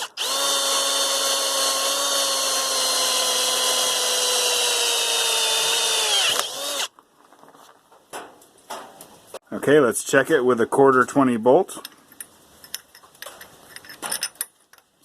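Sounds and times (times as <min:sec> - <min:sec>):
electric drill boring through steel: 0:00.0 - 0:06.9.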